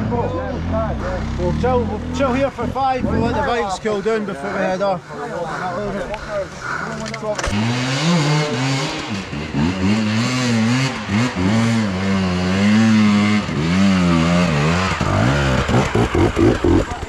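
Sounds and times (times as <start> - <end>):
motorcycle engine revving and idling: 0.0 - 3.7, 7.4 - 17.0.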